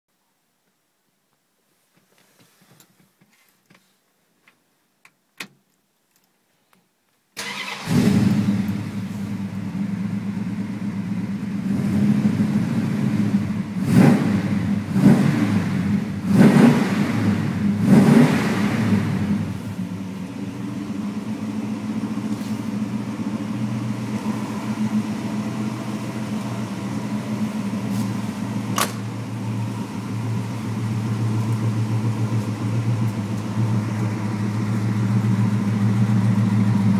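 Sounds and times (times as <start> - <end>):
car engine idling: 7.4 - 36.9
car engine starting and revving: 7.4 - 36.9.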